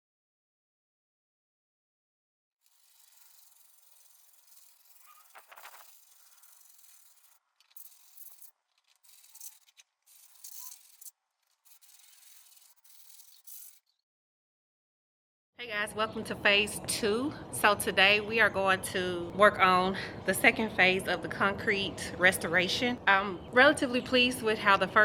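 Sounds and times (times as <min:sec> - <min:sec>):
sanding block rubbing concrete: 0:02.6 - 0:13.8.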